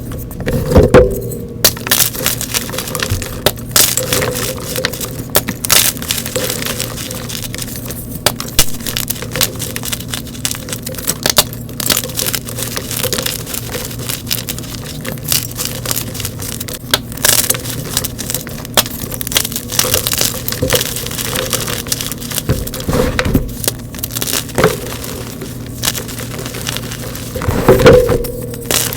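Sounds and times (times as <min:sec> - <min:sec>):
chalk being crushed by hand: 0:00.0 - 0:28.9.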